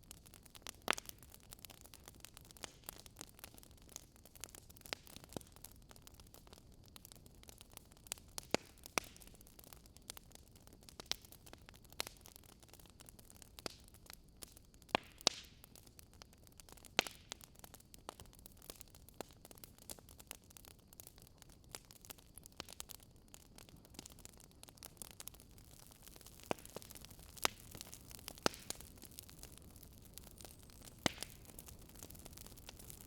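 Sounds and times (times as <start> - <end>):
faint steady hiss: 0.0 - 33.0
wood fire crackling: 0.0 - 33.0.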